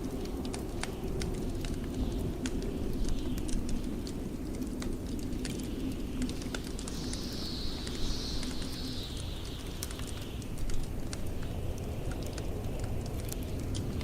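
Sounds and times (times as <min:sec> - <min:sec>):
blizzard wind rumble: 0:00.0 - 0:14.0
wood fire crackling and popping: 0:00.0 - 0:14.0
wind gust hissing: 0:05.6 - 0:14.0.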